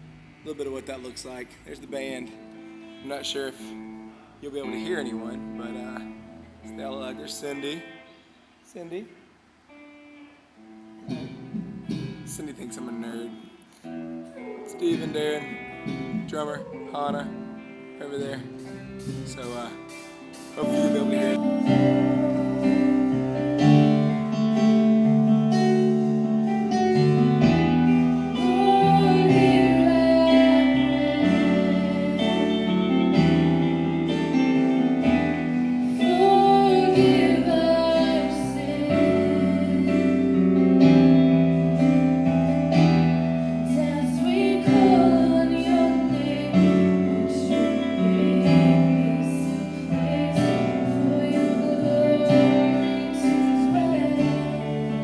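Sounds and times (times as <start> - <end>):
bass: 0.0 - 7.8, 11.0 - 55.0
strummed guitars: 0.0 - 55.0
drums: 11.0 - 12.9, 14.6 - 55.0.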